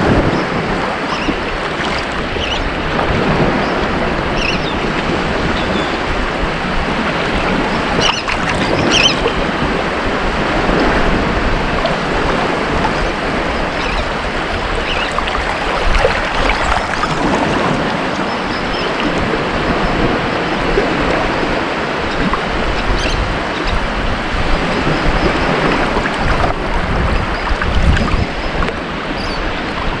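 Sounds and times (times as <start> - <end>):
ocean waves breaking on beach: 0.0 - 30.0.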